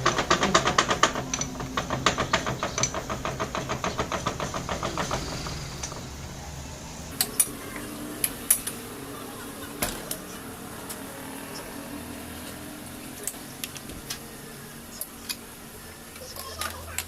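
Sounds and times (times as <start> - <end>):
rapid metal tapping: 0.0 - 6.1
sharp metal clicks: 0.0 - 6.1.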